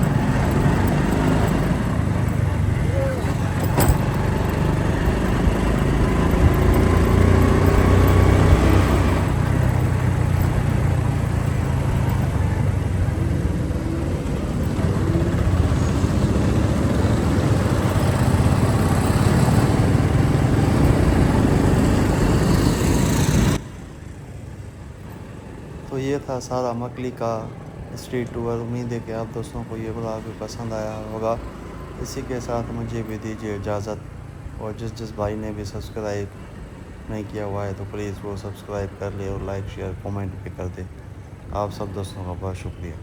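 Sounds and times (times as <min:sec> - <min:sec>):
motorcycle engine rumble: 0:00.0 - 0:43.0
wind noise on microphone: 0:01.8 - 0:23.6.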